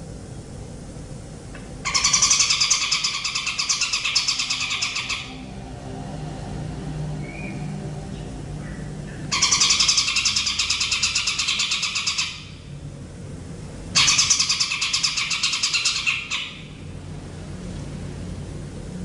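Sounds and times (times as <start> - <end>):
steady low hum: 0.0 - 19.0
songbird trilling: 1.9 - 5.4, 7.2 - 7.7, 8.6 - 12.7, 14.0 - 16.8.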